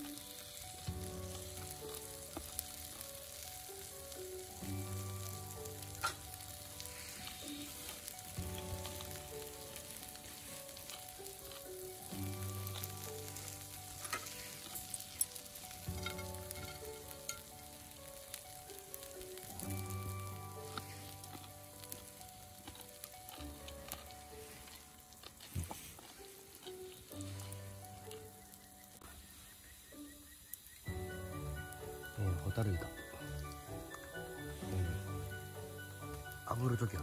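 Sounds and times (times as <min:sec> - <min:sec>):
meat sizzling in a frying pan: 0:00.0 - 0:37.0
background music with bass: 0:30.9 - 0:37.0.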